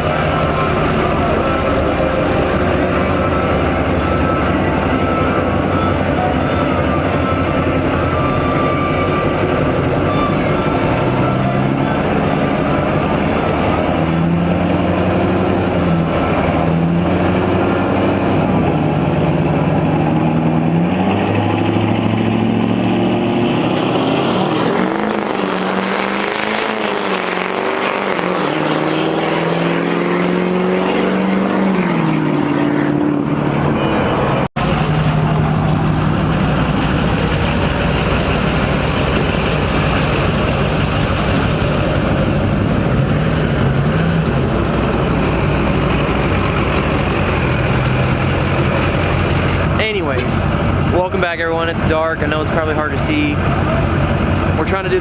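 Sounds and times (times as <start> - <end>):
diesel truck engines revving: 0.0 - 55.0.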